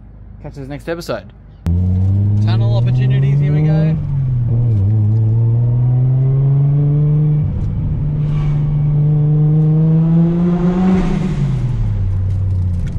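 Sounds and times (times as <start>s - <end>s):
car engine accelerating: 1.7s - 12.9s.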